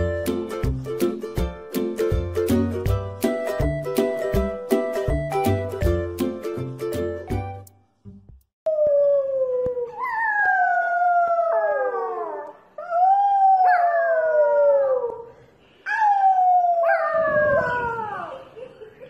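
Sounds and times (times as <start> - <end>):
puppy howling: 8.7 - 15.3, 15.9 - 18.4.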